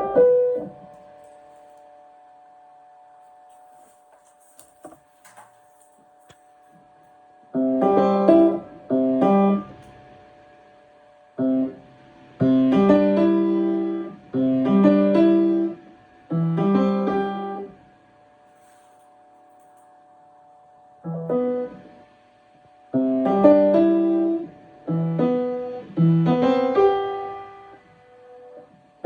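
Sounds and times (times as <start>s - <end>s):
piano phrases: 0.0s - 1.8s, 7.5s - 17.9s, 21.0s - 22.2s, 22.8s - 29.0s.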